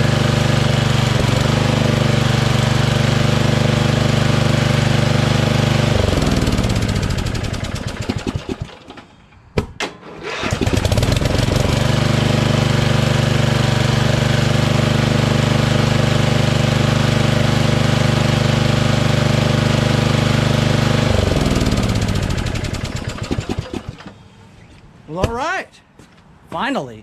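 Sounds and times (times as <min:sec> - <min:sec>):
lawn tractor engine running: 0:00.0 - 0:09.0, 0:10.0 - 0:24.2
sharp starter clicks: 0:09.8 - 0:11.4, 0:22.6 - 0:24.2.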